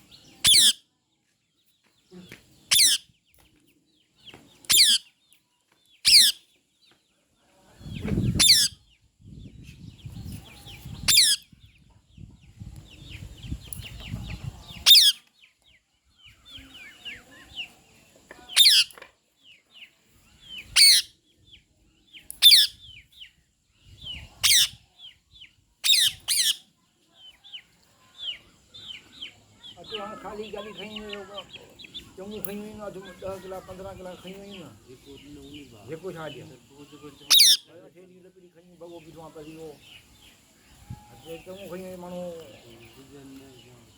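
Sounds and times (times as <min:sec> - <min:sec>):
high downward-sweeping bird calls: 0:00.0 - 0:00.8, 0:02.7 - 0:03.1, 0:04.7 - 0:05.1, 0:06.1 - 0:06.4, 0:18.5 - 0:18.9, 0:22.4 - 0:26.7, 0:28.2 - 0:37.8
soft bird chirps: 0:00.0 - 0:43.9.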